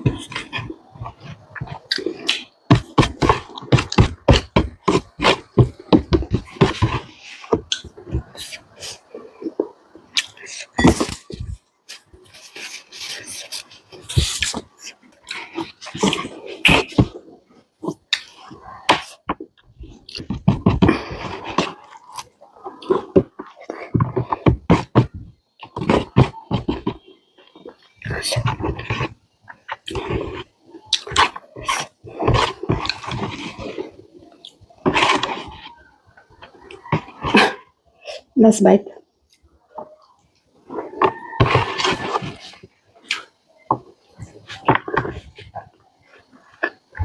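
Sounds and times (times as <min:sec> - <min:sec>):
person chewing food: 0:00.0 - 0:38.4, 0:39.3 - 0:47.0
chewing with wet lip-smacking: 0:30.9 - 0:32.2.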